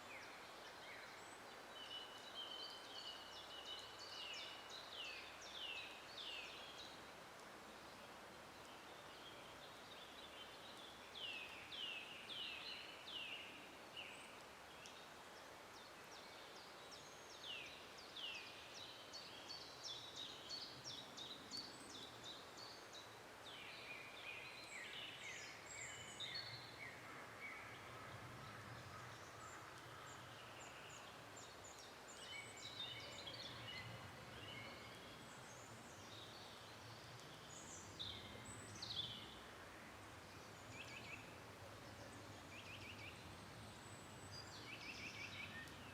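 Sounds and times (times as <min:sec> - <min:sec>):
faint steady hiss: 0:00.0 - 0:45.9
songbirds singing: 0:00.0 - 0:45.9.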